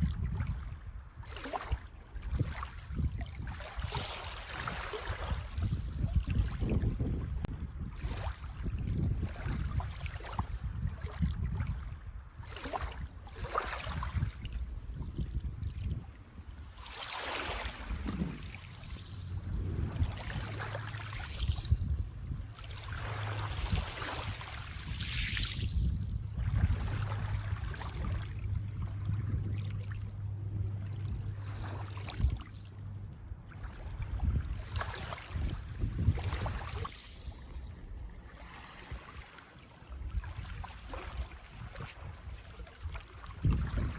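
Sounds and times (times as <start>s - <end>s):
waves washing on a beach: 0.0s - 7.0s, 12.0s - 30.3s, 33.5s - 43.9s
wind on microphone: 0.0s - 39.2s, 39.9s - 43.9s
steady low rumble: 17.7s - 36.6s.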